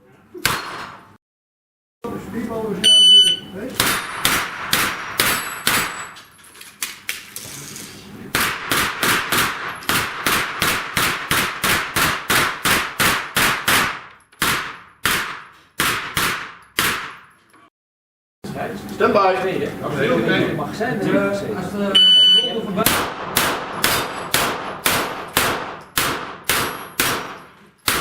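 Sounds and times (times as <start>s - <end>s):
steel targets clanging: 2.9s - 6.6s
rapid gunfire: 3.8s - 6.0s, 8.4s - 17.3s, 22.8s - 28.0s.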